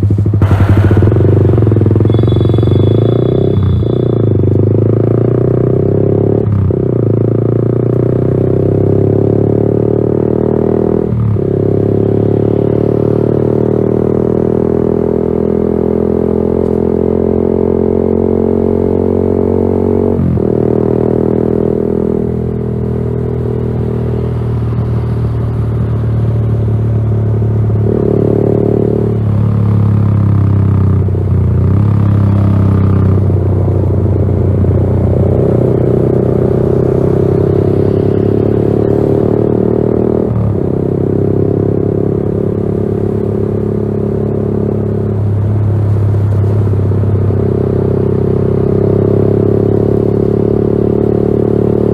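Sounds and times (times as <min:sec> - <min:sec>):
motorcycle engine riding: 0:00.0 - 0:51.9.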